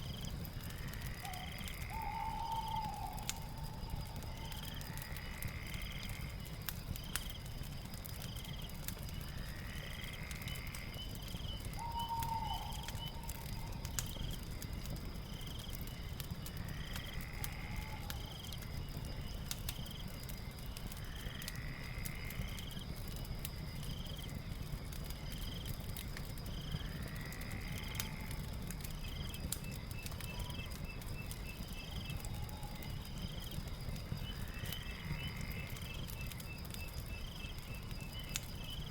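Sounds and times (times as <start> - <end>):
crackling fire with pops: 0.0 - 38.9
insects chirping: 0.0 - 38.9
night animals calling: 0.6 - 6.3, 9.7 - 14.0.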